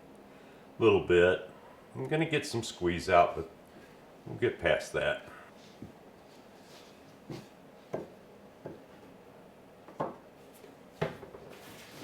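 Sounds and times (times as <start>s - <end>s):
knocks and taps on wood: 7.3s - 8.8s.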